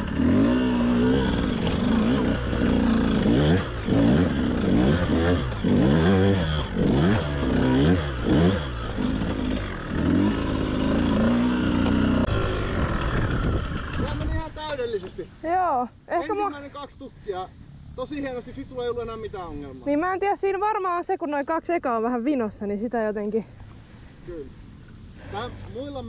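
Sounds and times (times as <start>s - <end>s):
motorcycle engine revving: 0.0s - 14.7s.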